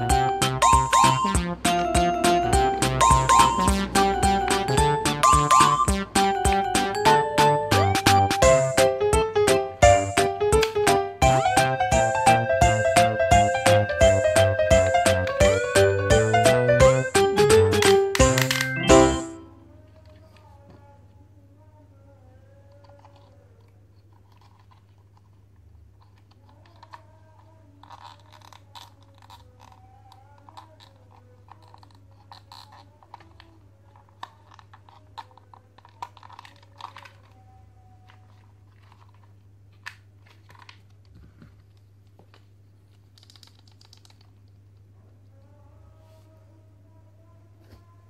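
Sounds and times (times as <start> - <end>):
plastic toy parts clicking: 17.7 - 18.8, 22.7 - 41.1, 41.7 - 44.6.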